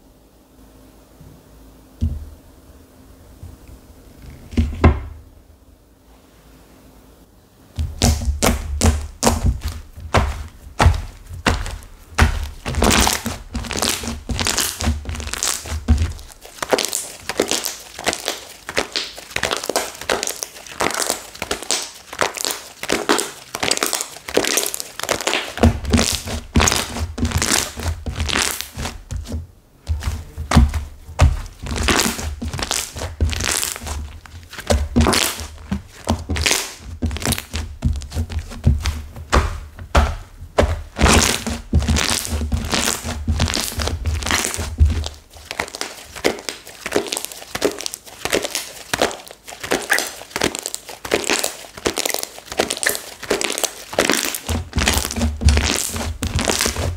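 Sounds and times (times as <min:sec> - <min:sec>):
dull thunks on surface: 0:02.0 - 0:02.3, 0:04.6 - 0:05.2
slime crackling and crunching: 0:07.8 - 0:56.9.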